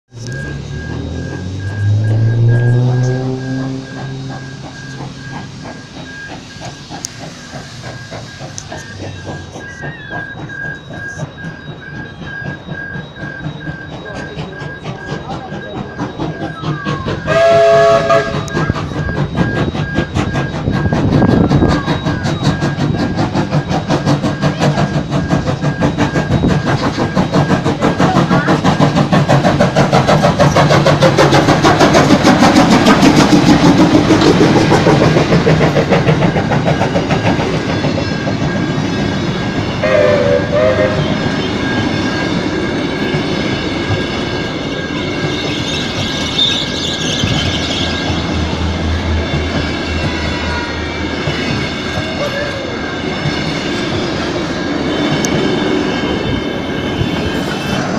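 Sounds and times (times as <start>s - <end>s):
train wheels clattering on rails: 0.1s - 57.9s
train horn: 17.3s - 18.6s, 39.8s - 41.6s.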